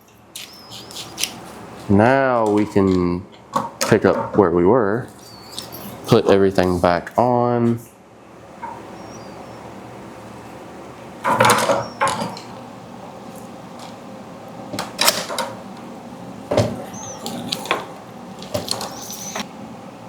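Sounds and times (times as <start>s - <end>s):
short high squeaks: 0.4s - 1.2s, 5.2s - 6.2s, 8.6s - 9.7s, 16.8s - 17.7s, 18.6s - 19.4s.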